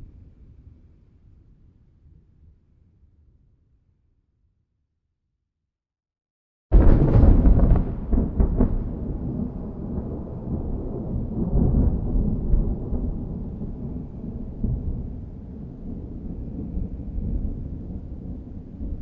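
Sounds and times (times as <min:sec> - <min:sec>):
thunderclap: 0:06.7 - 0:19.0.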